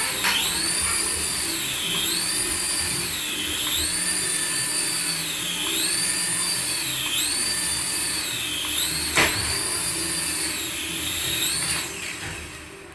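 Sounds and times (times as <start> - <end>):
toy whine rising and falling: 0.0 - 12.9.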